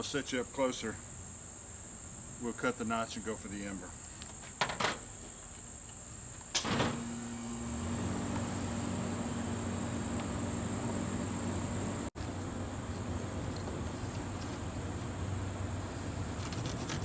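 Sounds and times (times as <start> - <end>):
crickets trilling: 7.9 - 17.0.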